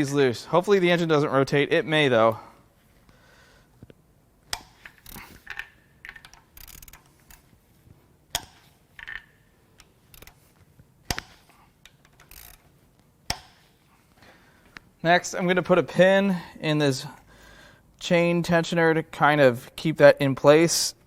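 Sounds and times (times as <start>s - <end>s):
bolts cracking loose: 4.5s - 7.5s, 8.3s - 10.4s, 11.0s - 12.7s, 13.3s - 13.7s
ratchet wrench clicking: 4.5s - 7.5s, 8.4s - 10.4s, 11.1s - 12.7s.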